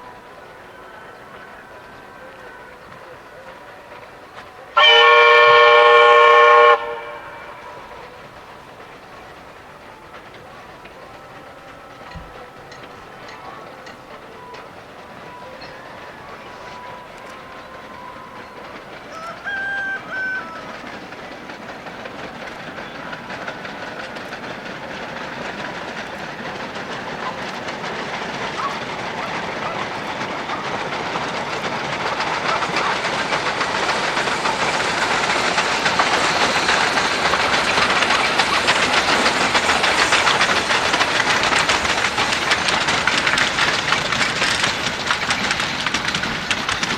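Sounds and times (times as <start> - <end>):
train wheels clattering: 0.0 - 46.9
steam locomotive whistle blasts: 4.7 - 8.0, 19.1 - 20.8.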